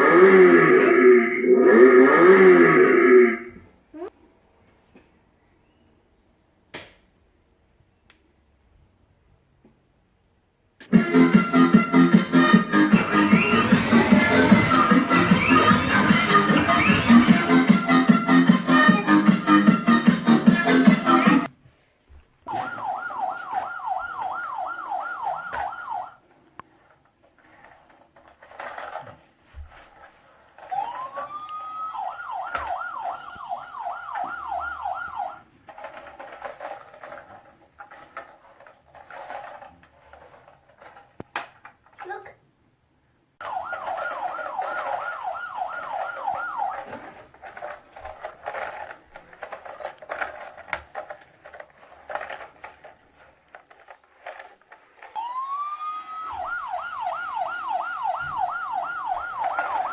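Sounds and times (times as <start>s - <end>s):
toy siren warbling: 0.0s - 4.1s, 10.9s - 21.5s, 22.5s - 26.2s, 30.6s - 35.4s, 43.4s - 47.7s, 55.1s - 59.9s.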